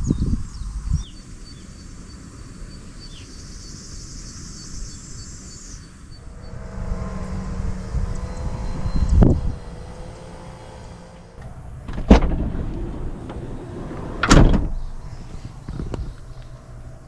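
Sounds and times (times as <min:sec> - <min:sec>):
bird chirps: 0:00.0 - 0:10.5
insects trilling: 0:01.0 - 0:11.8
low engine hum: 0:05.9 - 0:17.0.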